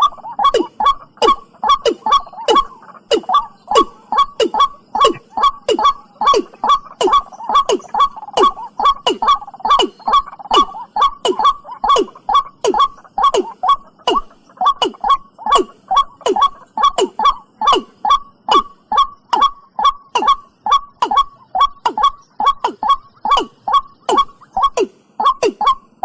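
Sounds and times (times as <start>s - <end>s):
watercock calling: 0.0s - 26.0s.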